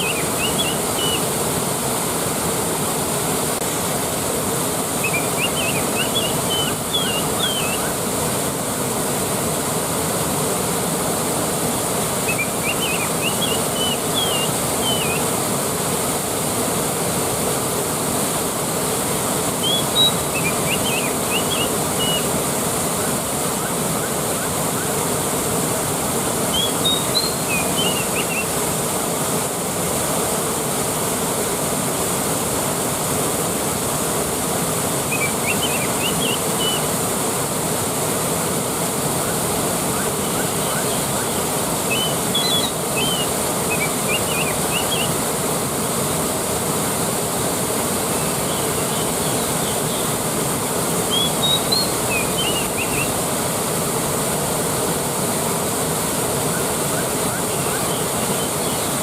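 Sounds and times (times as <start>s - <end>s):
waterfall rushing: 0.0s - 59.0s
small bird chirping: 5.0s - 7.9s, 19.6s - 22.2s, 26.5s - 28.5s.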